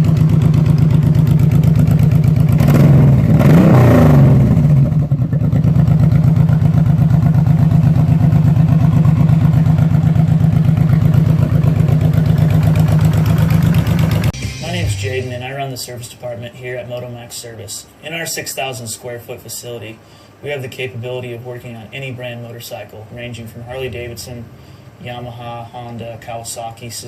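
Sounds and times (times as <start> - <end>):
motorcycle engine idling: 0.0 - 3.5, 4.2 - 14.4.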